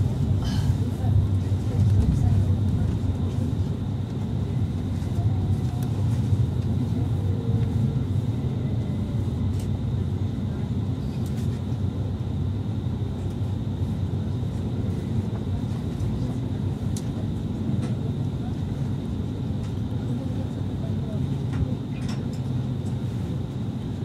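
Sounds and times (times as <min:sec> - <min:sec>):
train wheels rumbling on rails: 0:00.0 - 0:07.9.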